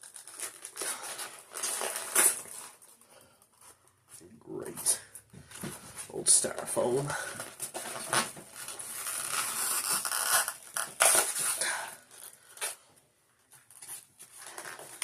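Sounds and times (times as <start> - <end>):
styrofoam crunching: 0.0 - 2.9, 7.3 - 12.8
cardboard box tearing: 7.6 - 12.0.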